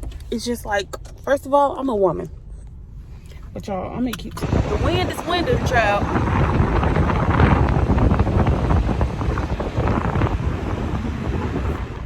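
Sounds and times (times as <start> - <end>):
wind buffeting microphone: 4.2 - 12.0.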